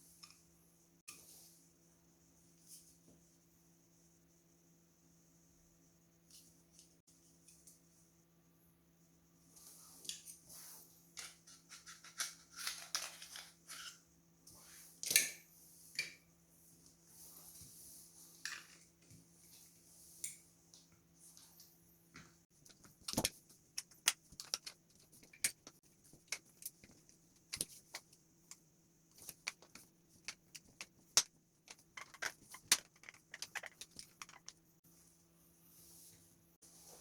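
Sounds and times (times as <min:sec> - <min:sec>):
faint steady hum: 0:00.0 - 0:37.0
plastic parts clicking: 0:29.2 - 0:34.6.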